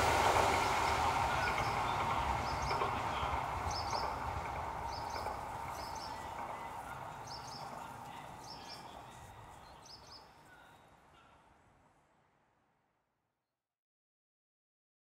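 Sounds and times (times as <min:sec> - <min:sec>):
bird chirping: 0:01.3 - 0:11.3.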